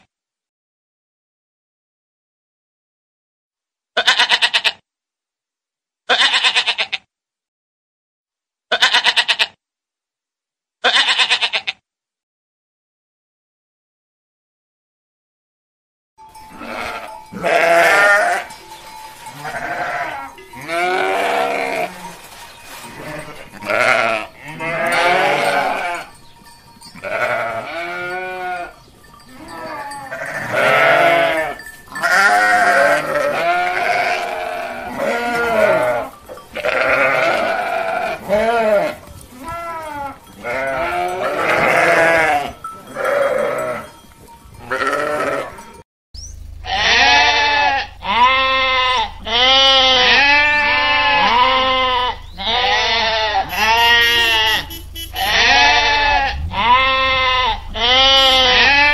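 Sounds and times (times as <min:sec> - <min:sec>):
goats and sheep bleating: 0:04.0 - 0:04.8, 0:06.1 - 0:07.1, 0:08.7 - 0:09.6, 0:10.8 - 0:11.8, 0:16.2 - 0:45.8, 0:46.6 - 0:58.9.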